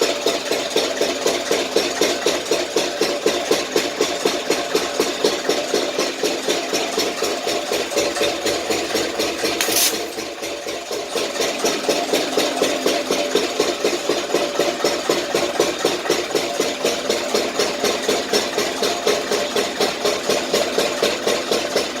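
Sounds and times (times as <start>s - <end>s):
pump engine chugging: 0.0s - 22.0s
short hiss: 9.6s - 10.2s.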